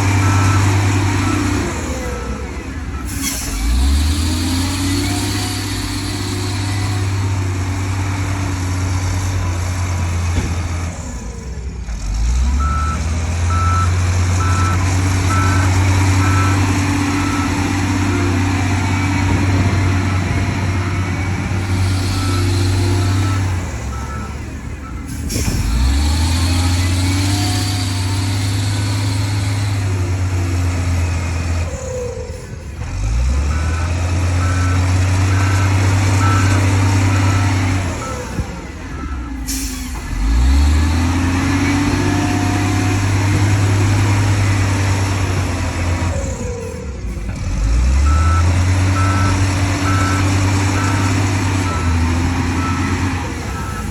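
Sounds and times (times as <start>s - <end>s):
reversing alarm beeping: 0.0s - 7.3s, 12.5s - 29.5s, 33.5s - 40.0s, 48.0s - 53.9s
diesel machine engine running: 0.0s - 53.9s.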